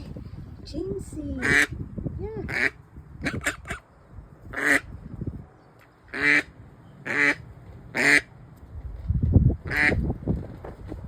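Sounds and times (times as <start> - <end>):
duck quacking: 1.4 - 1.7, 2.5 - 3.8, 4.5 - 4.9, 6.1 - 8.3.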